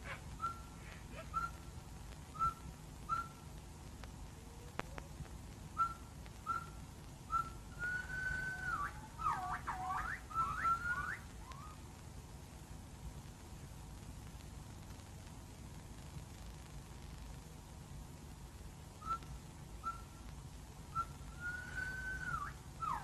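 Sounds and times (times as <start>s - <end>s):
bird whistling: 0.0s - 1.7s, 2.3s - 3.4s, 5.8s - 11.8s, 19.0s - 20.2s, 20.9s - 23.0s
film soundtrack hum and hiss: 0.0s - 23.0s.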